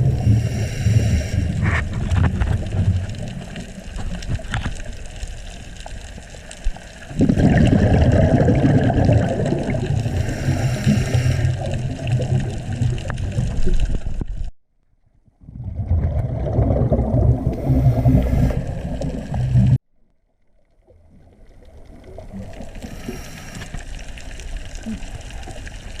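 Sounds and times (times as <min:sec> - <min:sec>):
faint hiss: 0:00.0 - 0:01.6, 0:10.0 - 0:11.8, 0:22.6 - 0:25.6
regulator breathing underwater: 0:00.0 - 0:01.9, 0:09.8 - 0:12.2, 0:17.4 - 0:19.8, 0:22.7 - 0:24.0
exhaust bubbles rushing: 0:07.1 - 0:10.2, 0:11.5 - 0:13.8, 0:15.4 - 0:19.8.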